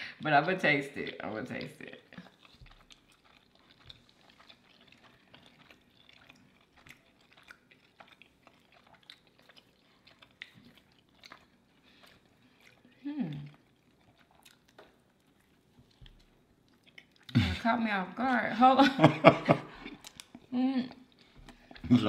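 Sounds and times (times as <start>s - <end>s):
faint chewing of soft food: 0.0s - 17.6s, 19.5s - 22.0s.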